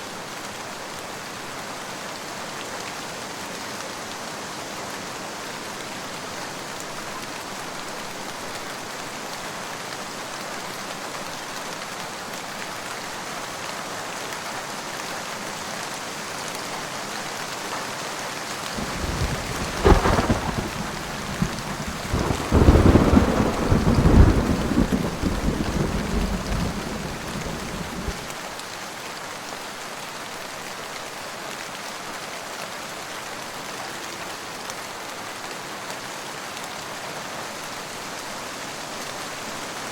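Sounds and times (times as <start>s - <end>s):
steady rain: 0.0s - 39.9s
thunderclap and rumbling: 18.8s - 28.3s.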